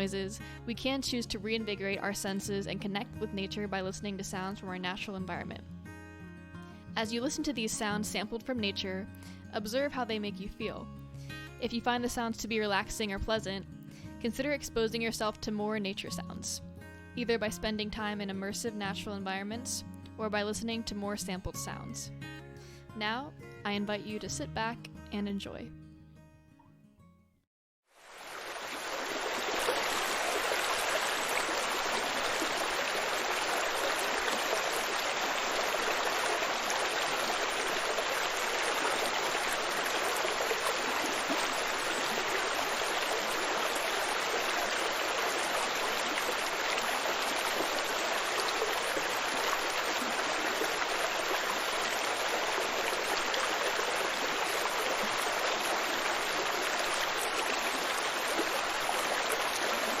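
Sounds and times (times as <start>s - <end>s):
stream water rushing: 27.9s - 60.0s.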